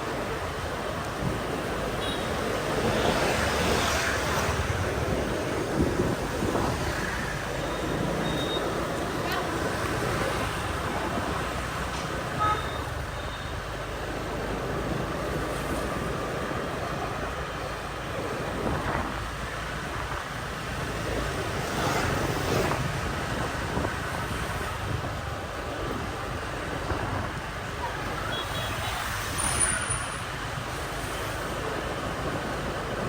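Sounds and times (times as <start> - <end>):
wind rumbling on microphone: 0.0 - 12.0, 14.7 - 28.2
city street traffic: 0.0 - 33.0
motorbike engines running: 0.0 - 33.0
short beep: 7.6 - 8.9.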